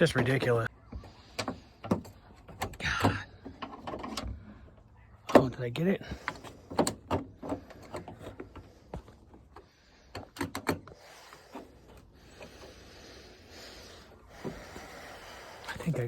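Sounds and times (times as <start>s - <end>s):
metallic clicks and knocks: 9.5s - 11.0s.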